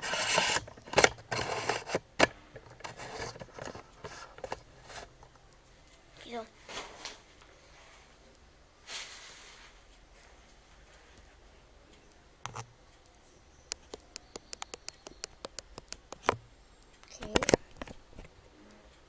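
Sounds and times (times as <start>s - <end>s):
small sharp clicks and taps: 12.1s - 18.3s.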